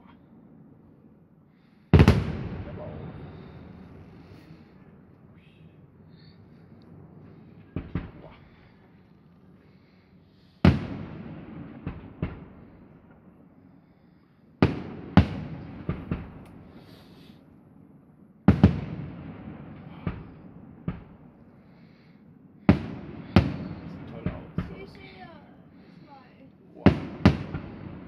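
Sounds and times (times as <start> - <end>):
fireworks bursting with bangs: 1.9 - 4.9, 6.1 - 8.9, 9.7 - 13.6, 14.6 - 17.6, 18.4 - 28.0.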